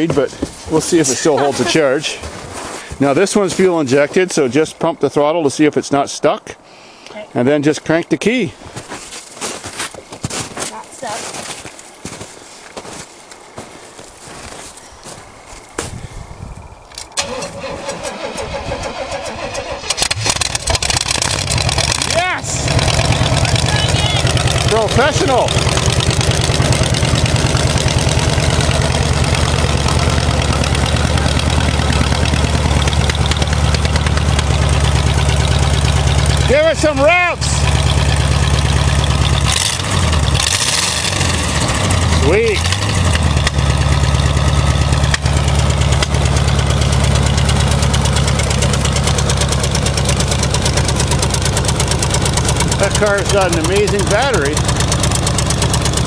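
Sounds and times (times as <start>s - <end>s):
car engine idling: 16.6s - 56.0s.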